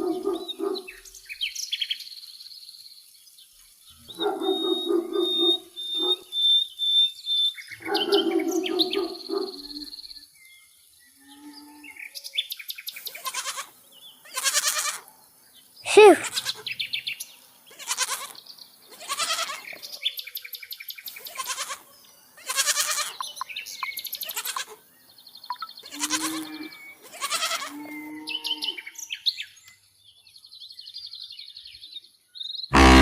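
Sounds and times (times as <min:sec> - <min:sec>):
birds chirping faintly: 0:02.8 - 0:06.5
sheep bleating: 0:14.3 - 0:15.0, 0:19.0 - 0:19.6, 0:22.4 - 0:23.2, 0:25.9 - 0:27.9, 0:32.7 - 0:33.0.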